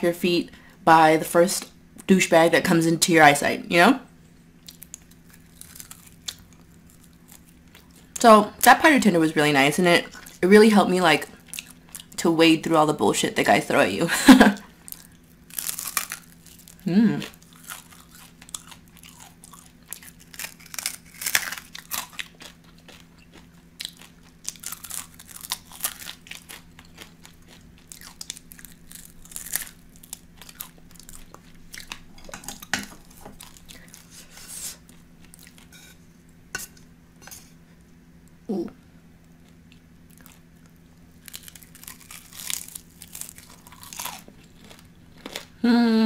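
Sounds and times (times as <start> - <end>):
chewing crispy chicken: 4.6 - 8.2, 11.2 - 12.2, 14.5 - 36.0, 39.4 - 45.6.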